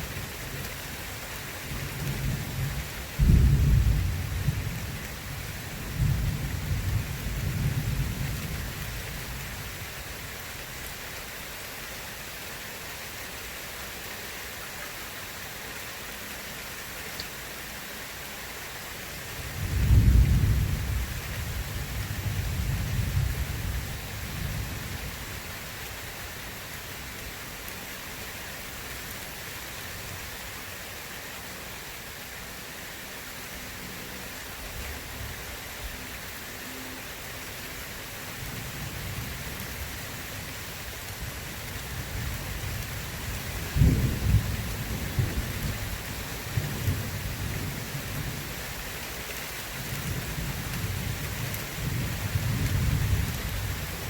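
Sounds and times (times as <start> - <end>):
steady rain: 0.0 - 54.0
thunder rumbling: 1.7 - 9.4, 19.5 - 25.1, 41.9 - 48.5, 50.0 - 54.0
sharp thunderclap: 3.2 - 4.3.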